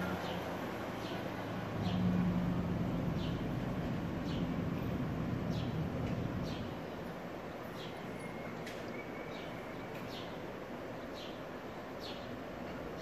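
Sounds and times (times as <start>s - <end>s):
bird chirping: 3.0s - 12.4s.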